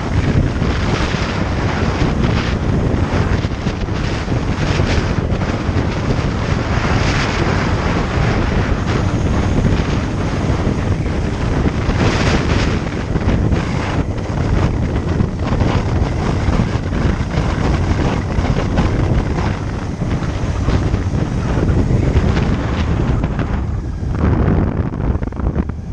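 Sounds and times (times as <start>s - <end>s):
motorcycle noise: 0.0s - 25.9s
wind rushing over microphone: 0.0s - 25.9s.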